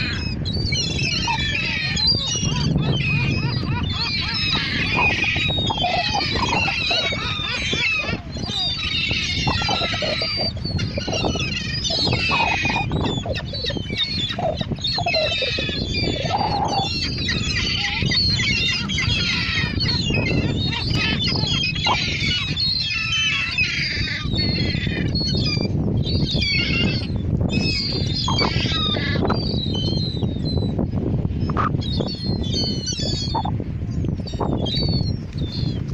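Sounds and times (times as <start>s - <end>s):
seagulls squawking: 0.0s - 30.8s, 31.4s - 33.6s.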